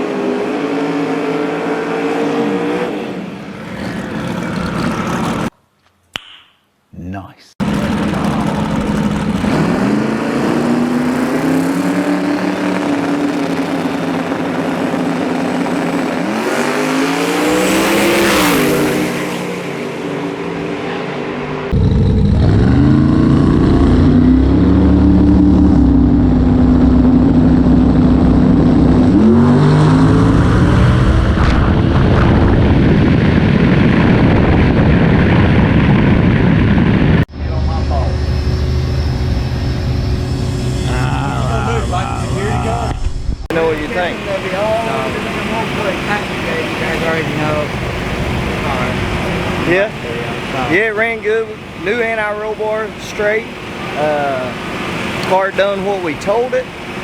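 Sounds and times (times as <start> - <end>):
race car engine revving hard: 0.0 - 5.5, 7.6 - 36.5, 37.4 - 57.0
high whine: 7.6 - 57.0.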